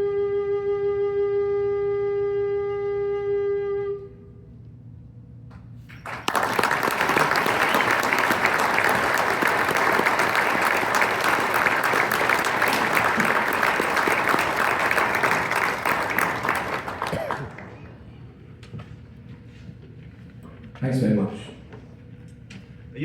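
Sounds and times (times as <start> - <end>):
audience applauding: 5.9 - 18.2.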